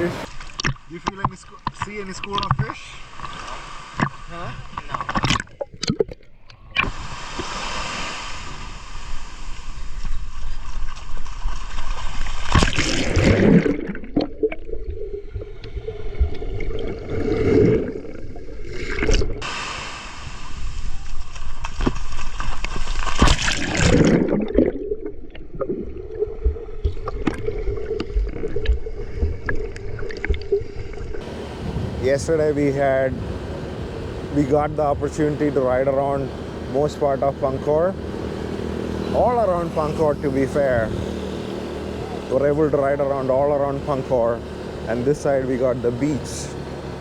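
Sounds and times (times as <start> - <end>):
sea water sloshing: 0.2 - 32.0.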